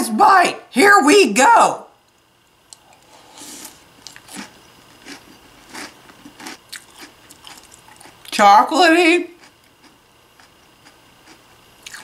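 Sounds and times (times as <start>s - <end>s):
mouth chewing crunchy cereal: 2.8s - 8.4s, 9.3s - 12.0s.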